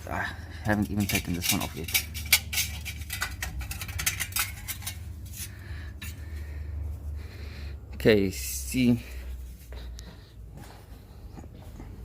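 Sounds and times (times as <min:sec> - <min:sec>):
metal clinking and scraping: 0:00.0 - 0:06.4.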